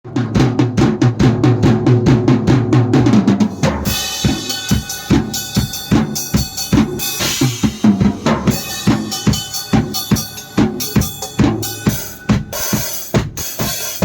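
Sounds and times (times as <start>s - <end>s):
bass drum beats: 0.0s - 14.0s
pitched drum beats: 0.0s - 14.0s
cymbals: 3.4s - 14.0s
sustained instrument tones: 4.2s - 12.6s.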